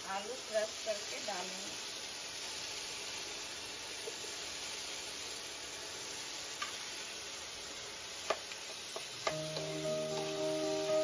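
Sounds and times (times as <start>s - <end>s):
masala sizzling in a frying pan: 0.0s - 11.0s
background music: 9.3s - 11.0s.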